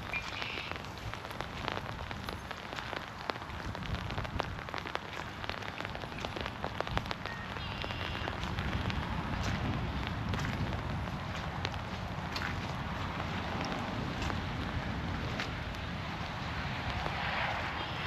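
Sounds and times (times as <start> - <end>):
bird calling: 0.0 - 0.8
heavy rain falling through trees: 0.0 - 18.0.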